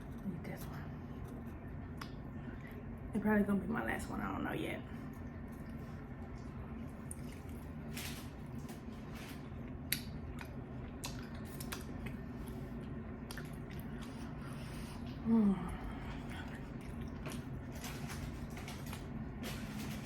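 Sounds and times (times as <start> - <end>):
steady low hum: 0.0 - 20.0
chewing chicken wing: 5.1 - 15.2, 16.2 - 19.2.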